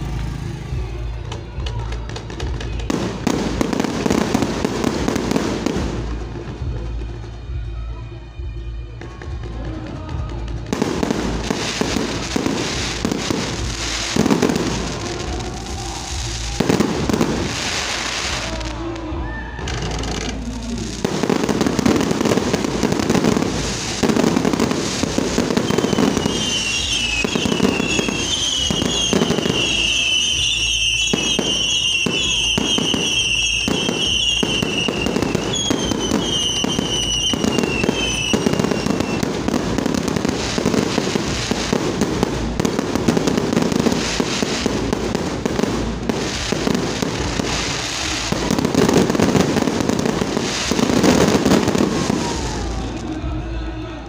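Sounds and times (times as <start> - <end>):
fireworks crackling and banging: 0.0 - 54.0
falling firework whistles: 11.0 - 53.2.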